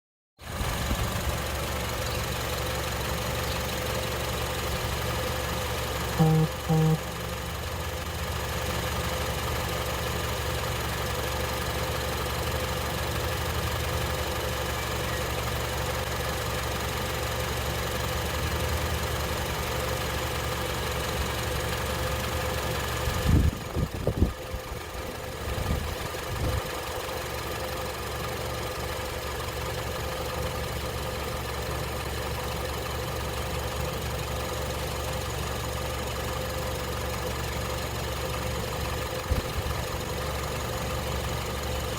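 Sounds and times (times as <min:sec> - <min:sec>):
car engine idling: 0:00.4 - 0:41.9.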